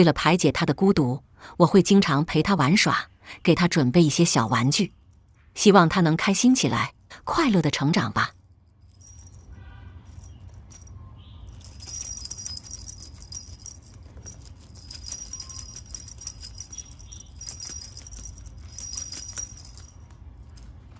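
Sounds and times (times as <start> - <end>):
jingle bell toy rattling: 8.2 - 20.9.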